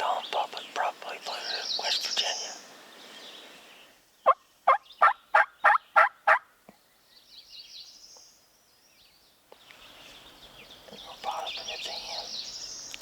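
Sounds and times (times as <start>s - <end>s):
turkey yelping: 4.7s - 6.5s.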